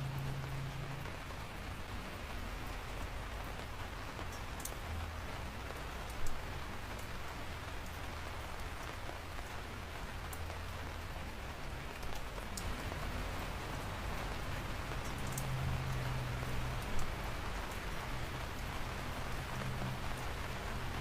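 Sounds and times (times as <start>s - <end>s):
steady rain falling: 0.0s - 21.0s
drips ticking on a surface: 4.2s - 5.1s, 6.0s - 6.4s, 14.9s - 17.8s.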